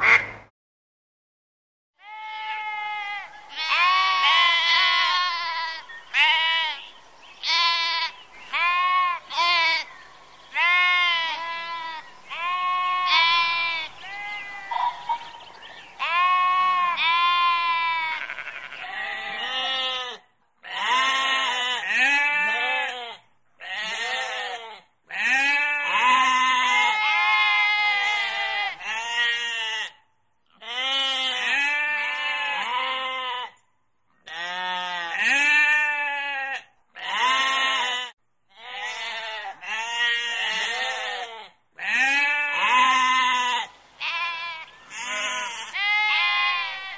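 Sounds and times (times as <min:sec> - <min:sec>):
sheep bleating: 0:02.0 - 0:09.9, 0:10.5 - 0:15.2, 0:16.0 - 0:33.6, 0:34.2 - 0:46.9
background hiss: 0:03.0 - 0:21.5, 0:41.8 - 0:46.9.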